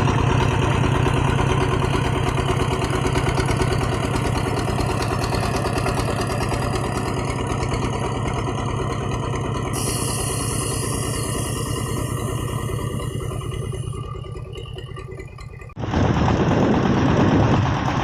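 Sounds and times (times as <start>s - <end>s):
diesel engine thumping: 0.0s - 18.0s
high hiss: 9.8s - 13.4s.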